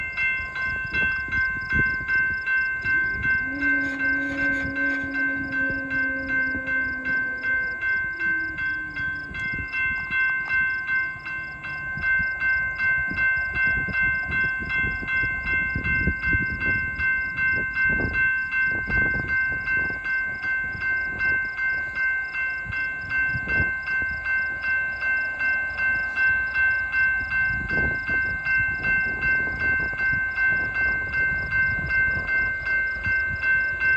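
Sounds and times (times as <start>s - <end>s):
passing train clanks and rumble: 0.0s - 33.9s
railroad crossing bell dinging: 0.0s - 33.9s
train horn: 2.8s - 9.8s.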